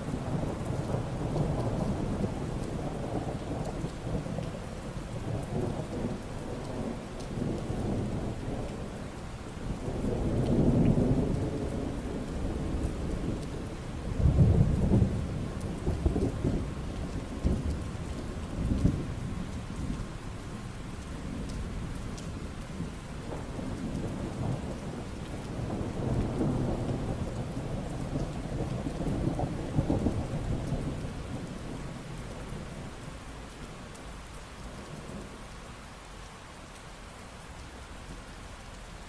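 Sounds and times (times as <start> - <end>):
steady rain: 0.0 - 39.0
rolling thunder: 9.7 - 20.1, 21.2 - 33.0.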